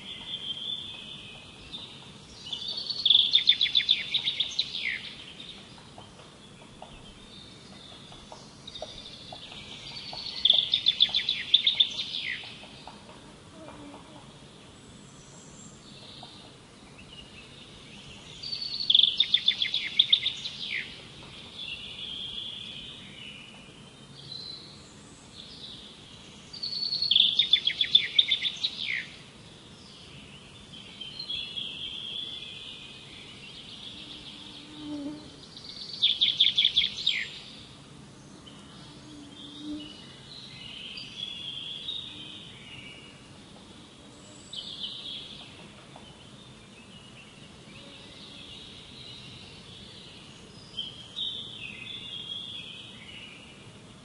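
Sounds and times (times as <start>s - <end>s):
bird singing a trilled phrase: 0.0s - 5.7s, 6.6s - 12.7s, 17.1s - 23.6s, 26.6s - 29.2s, 35.6s - 37.6s
birds twittering and chirping: 0.0s - 54.0s.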